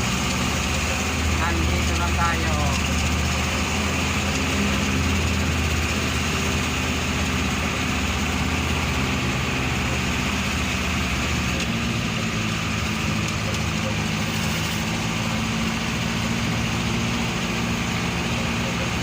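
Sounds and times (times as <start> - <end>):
road noise: 0.0 - 19.0
vehicle engine running: 0.0 - 19.0.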